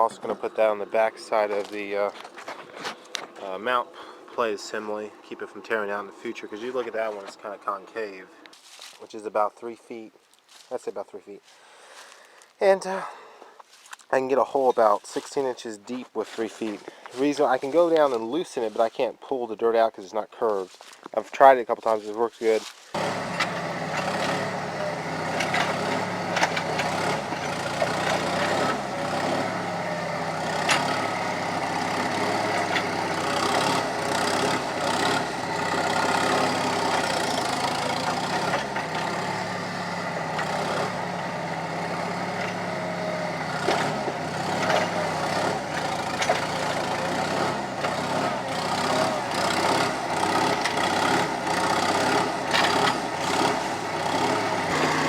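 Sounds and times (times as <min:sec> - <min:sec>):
skid steer engine running: 0:00.0 - 0:08.6, 0:22.9 - 0:55.0
metallic clanks: 0:23.0 - 0:42.9, 0:43.5 - 0:55.0.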